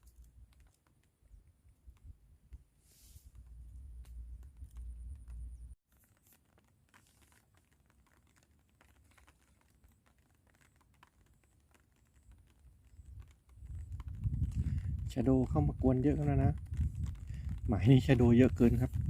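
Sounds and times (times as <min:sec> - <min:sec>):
faint ticks and taps: 0:00.0 - 0:19.0
wind buffeting microphone: 0:13.0 - 0:19.0.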